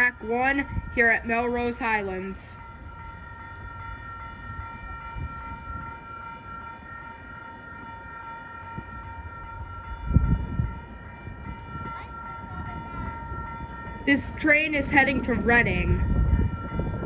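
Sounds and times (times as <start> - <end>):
ringing high tones: 0.0 - 17.0
train rumble: 0.0 - 17.0.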